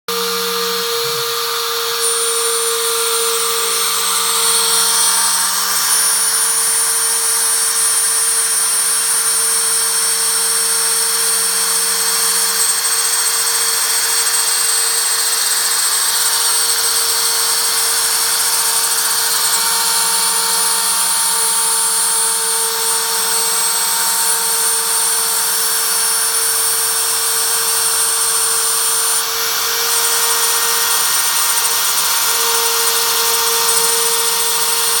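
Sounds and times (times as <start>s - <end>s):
lower machine tones: 0.1s - 5.7s
router spindle whining: 0.1s - 35.0s.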